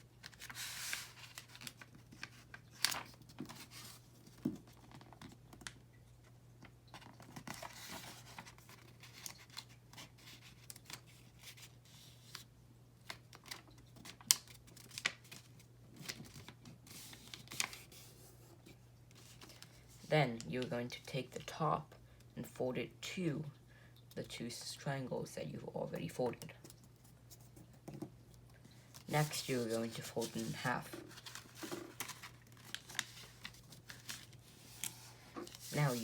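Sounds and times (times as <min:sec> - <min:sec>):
faint steady hum: 0:00.0 - 0:36.0
paper folding and creasing: 0:00.2 - 0:05.7, 0:06.9 - 0:12.5, 0:13.1 - 0:18.4, 0:28.9 - 0:36.0.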